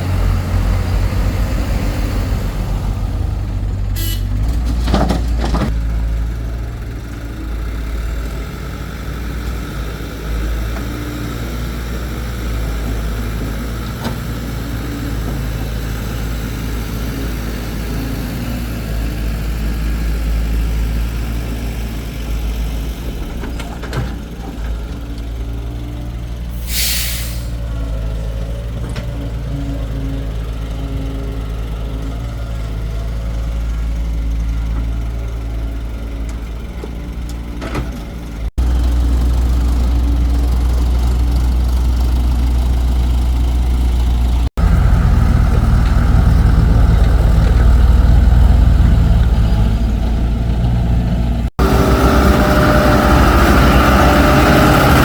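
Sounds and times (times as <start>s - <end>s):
excavator diesel engine running: 0.0s - 55.0s
short hisses: 26.6s - 27.6s.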